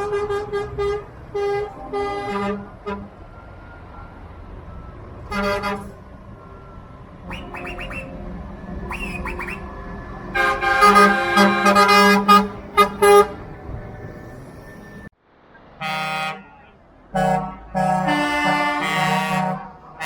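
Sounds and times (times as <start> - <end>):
truck air horn blasts: 0.0 - 3.2, 5.3 - 6.0, 7.2 - 8.2, 8.8 - 9.7, 10.3 - 13.5, 15.8 - 20.0
truck engines running: 0.0 - 20.0.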